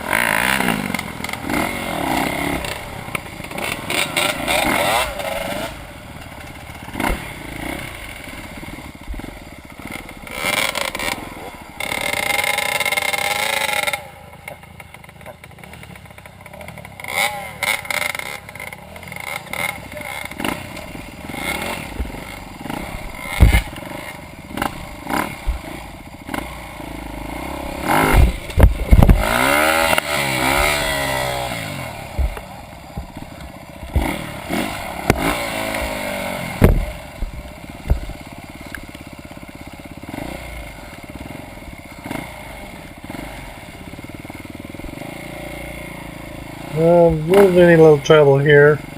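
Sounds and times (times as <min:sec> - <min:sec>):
motorcycle engine revving: 0:00.0 - 0:48.9
knocks and clatter: 0:23.0 - 0:23.8, 0:28.0 - 0:30.8.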